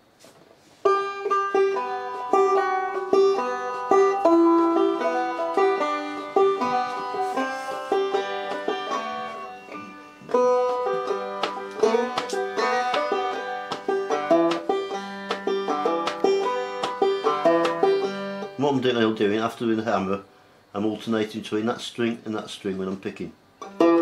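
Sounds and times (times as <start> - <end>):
banjo played clawhammer style: 0.8 - 19.1, 23.6 - 24.0.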